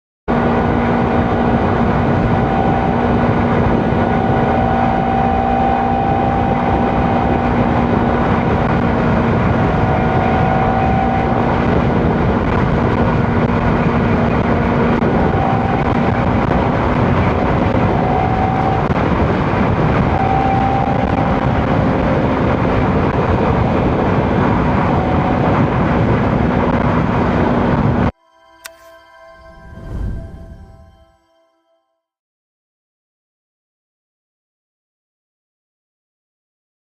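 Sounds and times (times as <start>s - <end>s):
motorcycle engine hum: 0.3s - 28.2s
wind and road rush: 0.3s - 28.2s.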